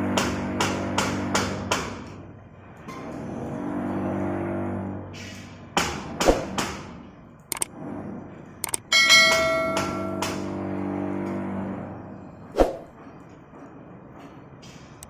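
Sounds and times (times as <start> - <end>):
sharp metal knocks: 5.8 - 6.9, 8.6 - 10.5
hoist motor humming: 7.5 - 7.8
loud ringing metal clang: 8.9 - 10.5.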